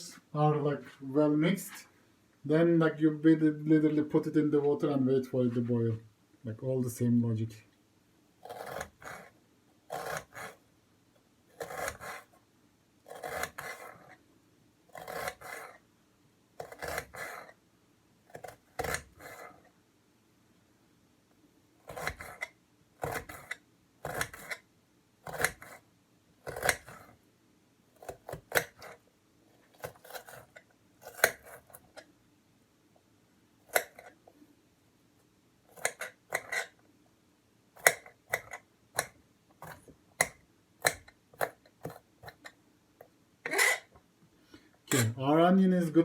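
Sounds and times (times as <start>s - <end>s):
knife chopping onion on board: 8.5s - 9.3s, 9.9s - 10.6s, 11.6s - 12.3s, 13.1s - 14.0s, 15.0s - 15.7s, 16.6s - 17.5s, 18.4s - 19.4s, 21.9s - 22.4s, 23.0s - 24.6s, 25.2s - 25.8s, 26.4s - 27.1s, 28.0s - 29.0s.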